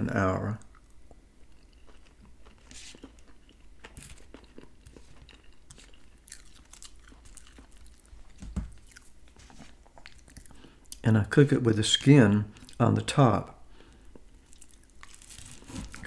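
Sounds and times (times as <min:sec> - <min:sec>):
man chewing: 0:00.6 - 0:11.0, 0:13.8 - 0:16.0.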